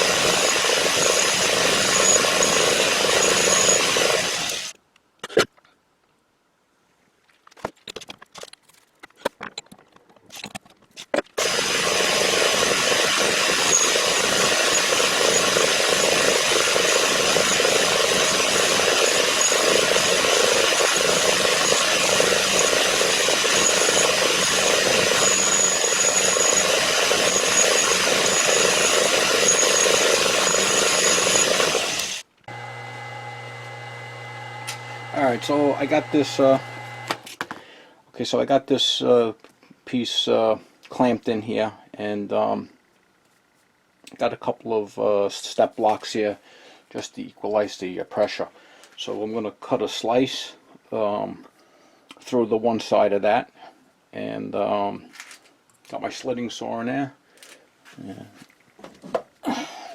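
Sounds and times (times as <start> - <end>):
machine tool cutting metal: 0.0 - 4.7, 11.4 - 37.3.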